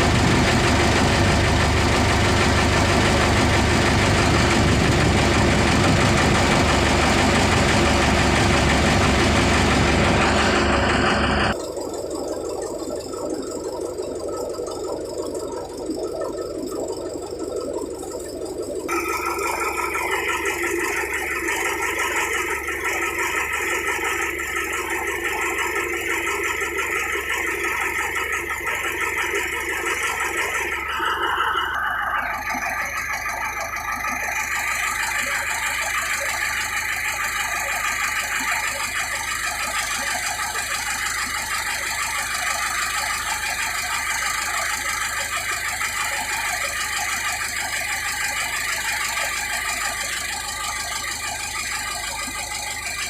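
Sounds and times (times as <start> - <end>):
boat engine running: 0.0 - 53.0.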